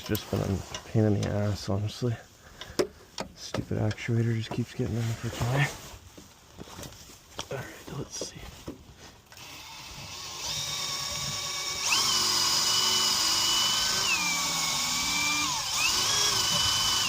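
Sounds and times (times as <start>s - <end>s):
electric drill whining: 9.3s - 17.0s.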